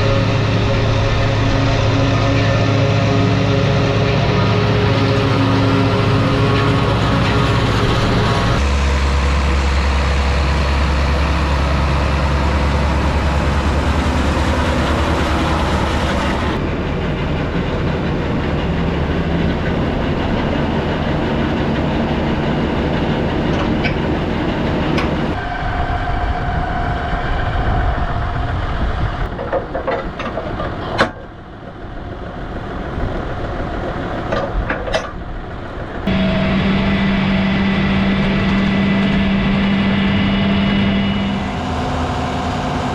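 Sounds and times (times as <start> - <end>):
tractor engines running: 0.0 - 42.9
sharp clanks and rattles: 0.3 - 25.4, 29.2 - 31.9, 32.9 - 37.0.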